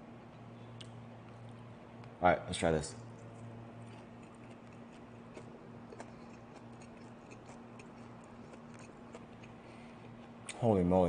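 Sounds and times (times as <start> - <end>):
steady low hum: 0.0 - 11.0
person chewing crisp food: 3.2 - 10.6.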